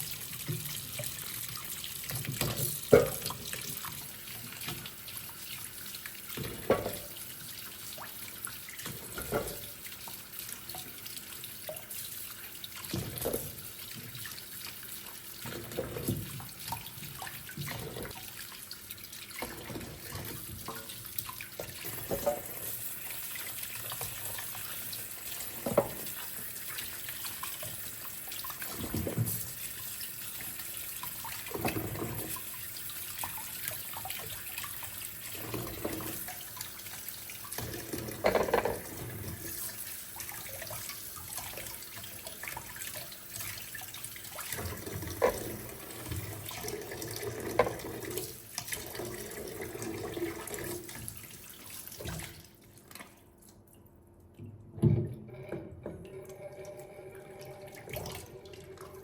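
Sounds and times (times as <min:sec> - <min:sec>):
tap running into a sink: 0:00.0 - 0:05.0, 0:06.3 - 0:07.2, 0:08.8 - 0:09.9, 0:12.8 - 0:14.4, 0:15.4 - 0:18.2, 0:19.4 - 0:22.8, 0:23.5 - 0:27.8, 0:28.4 - 0:29.5, 0:31.0 - 0:32.4, 0:37.5 - 0:42.8, 0:44.4 - 0:51.2.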